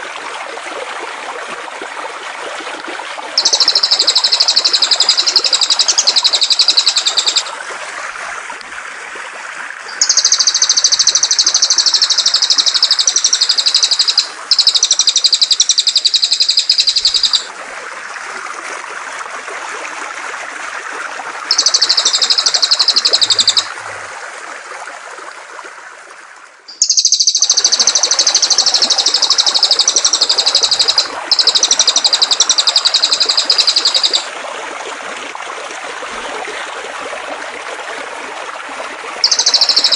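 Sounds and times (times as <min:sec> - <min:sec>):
flowing water rushing: 0:00.0 - 0:39.9
songbird trilling: 0:03.4 - 0:07.5, 0:09.9 - 0:17.5, 0:21.5 - 0:23.7, 0:26.7 - 0:34.3, 0:39.2 - 0:39.9.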